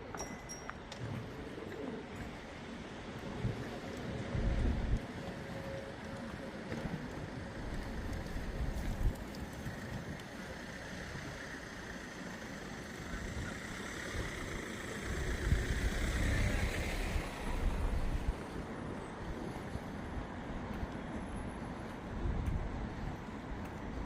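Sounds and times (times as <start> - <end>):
outdoor street noise: 0.0 - 24.0
motor vehicle passing: 10.5 - 18.6.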